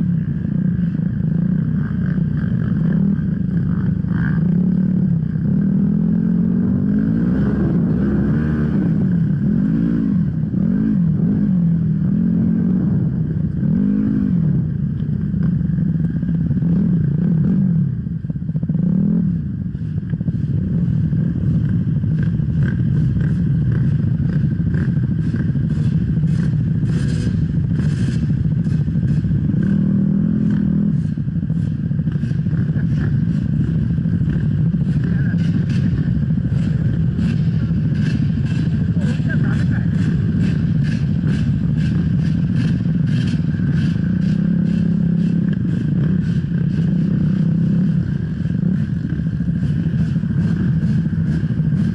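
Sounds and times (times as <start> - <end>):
motorcycle engine revving: 0.0 - 51.9
sharp rattles and knocks: 21.4 - 51.9.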